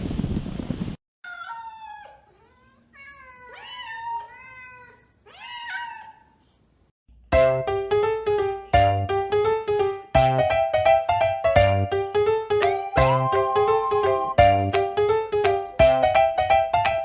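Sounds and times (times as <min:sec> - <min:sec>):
cat meowing: 0:01.2 - 0:06.4
piano music: 0:07.2 - 0:17.0.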